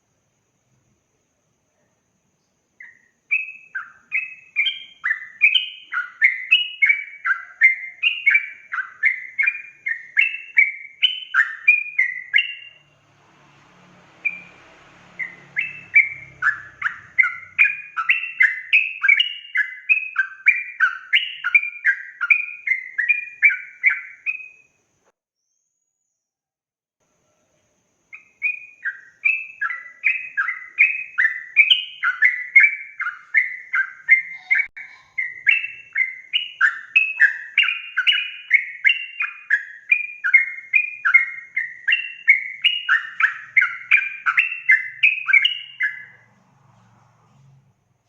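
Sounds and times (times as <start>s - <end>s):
bird singing bubbly chirps: 2.8s - 13.0s, 14.2s - 14.6s, 15.2s - 24.6s, 28.1s - 46.2s.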